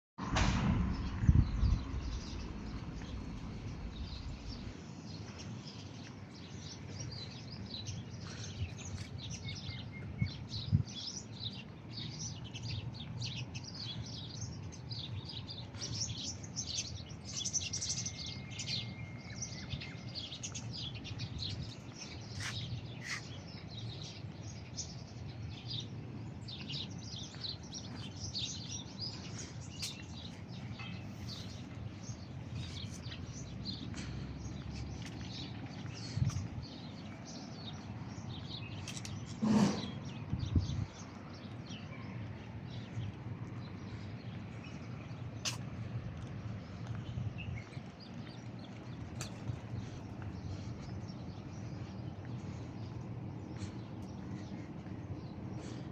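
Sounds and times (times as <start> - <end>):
low background rumble: 0.2 - 8.9
small birds chirping and twittering: 0.9 - 55.9.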